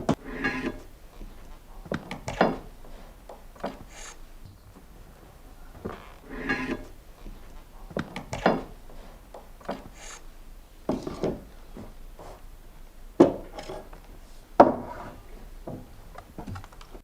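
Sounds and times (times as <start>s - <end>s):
wooden knocks: 0.0s - 3.9s, 5.8s - 10.0s, 10.9s - 12.0s, 13.2s - 13.9s, 14.6s - 16.7s
timber scraping and rubbing: 0.0s - 12.5s, 13.4s - 16.4s.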